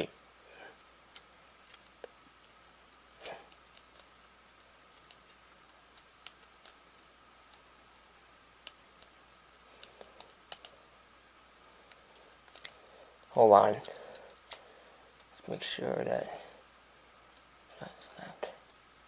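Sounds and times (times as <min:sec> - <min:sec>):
faint steady hum: 0:00.0 - 0:19.0
small clicks and taps: 0:00.7 - 0:08.0, 0:09.8 - 0:10.8.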